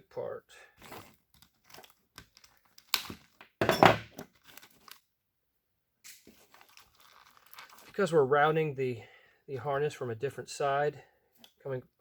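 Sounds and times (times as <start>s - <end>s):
plastic and tape crinkling and tearing: 0.8s - 3.4s, 4.2s - 5.1s, 6.1s - 8.1s.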